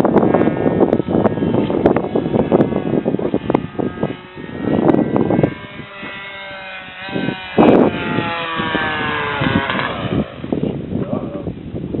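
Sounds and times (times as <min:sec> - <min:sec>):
model airplane motor drone: 0:00.0 - 0:12.0
wind gusts on microphone: 0:00.0 - 0:12.0.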